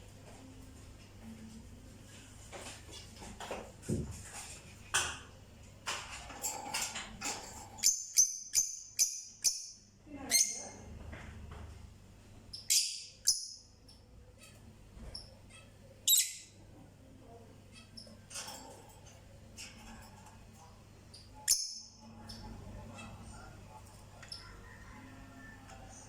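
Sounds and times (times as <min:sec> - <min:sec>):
small birds chirping: 0:12.5 - 0:16.6.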